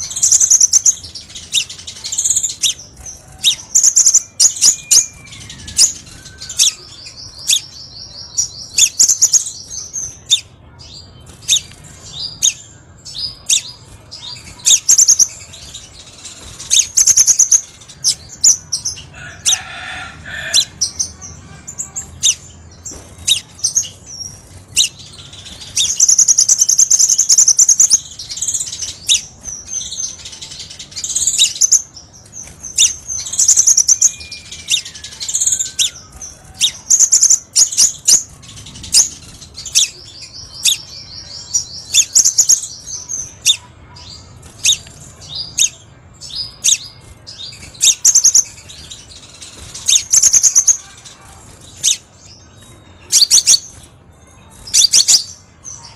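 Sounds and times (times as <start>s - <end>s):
bird chirping: 0.0s - 55.9s
buzzy bird trills: 0.0s - 55.9s.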